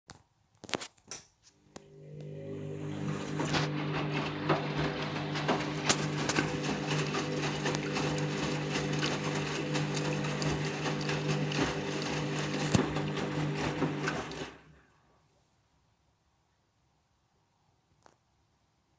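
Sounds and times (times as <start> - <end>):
washing machine motor hum: 1.7 - 14.9.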